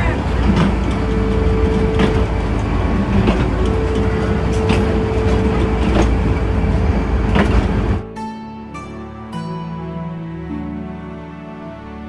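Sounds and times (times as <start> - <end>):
train rumbling on track: 0.0 - 8.0
wheels clicking over rail joints: 0.0 - 8.0.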